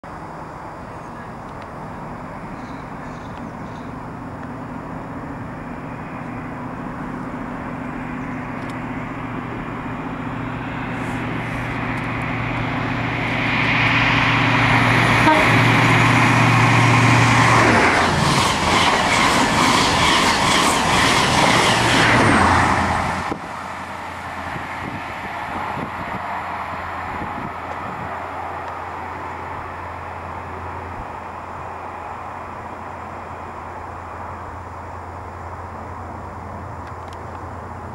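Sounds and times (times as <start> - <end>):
diesel train engine: 0.0 - 37.9
train horn: 15.1 - 15.7.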